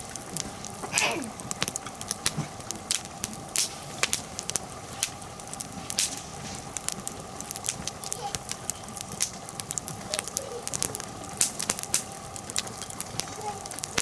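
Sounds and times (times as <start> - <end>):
fire hissing: 0.0 - 14.0
wood fire crackling and popping: 0.0 - 14.0.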